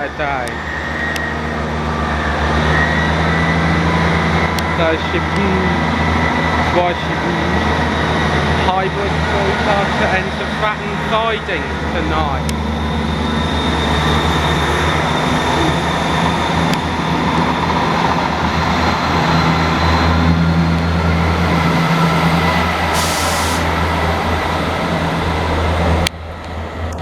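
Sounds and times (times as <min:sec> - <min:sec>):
diesel train engine drone: 0:00.0 - 0:27.0
short air hiss: 0:22.9 - 0:23.9.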